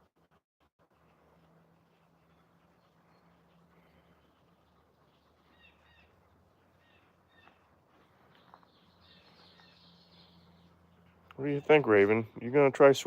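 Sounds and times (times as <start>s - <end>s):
faint bird chirps: 2.2s - 12.1s.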